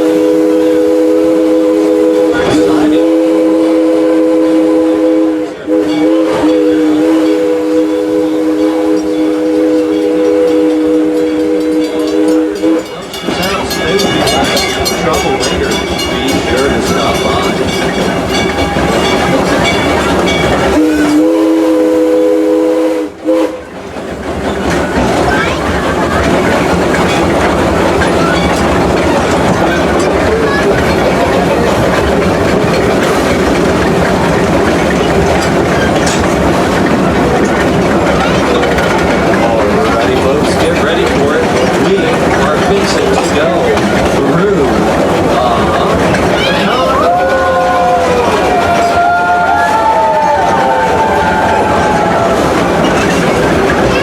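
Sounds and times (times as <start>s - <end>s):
steam locomotive chime whistle: 0.0s - 23.7s
train wheels clattering on rails: 0.0s - 54.0s.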